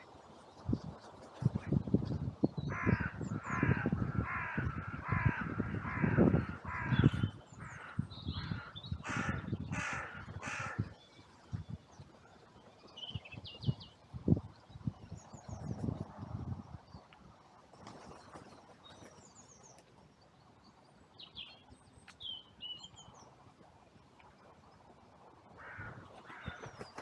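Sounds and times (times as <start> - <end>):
crow cawing: 2.7 - 10.8, 25.6 - 26.7.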